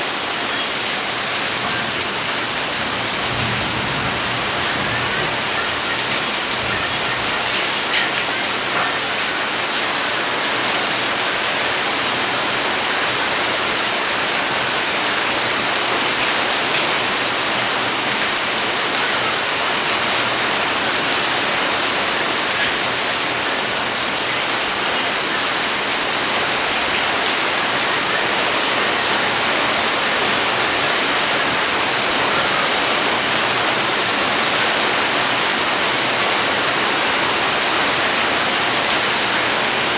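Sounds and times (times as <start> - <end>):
heavy rain hissing: 0.0 - 39.9
raindrop ticks: 1.6 - 9.3.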